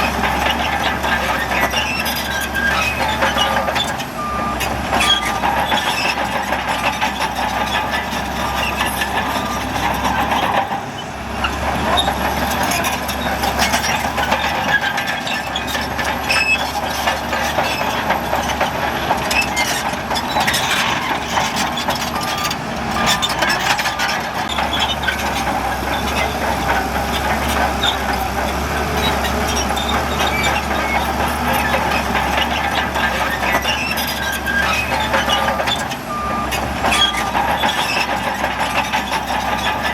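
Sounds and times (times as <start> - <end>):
diesel engines under load: 0.0 - 39.9
metallic clanking and rattling: 11.6 - 39.9.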